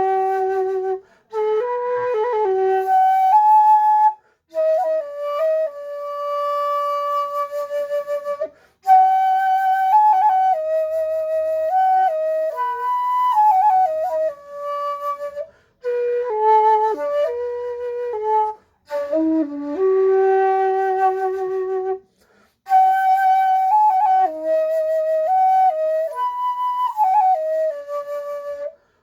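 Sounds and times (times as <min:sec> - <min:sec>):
shakuhachi melody: 0:00.0 - 0:28.9.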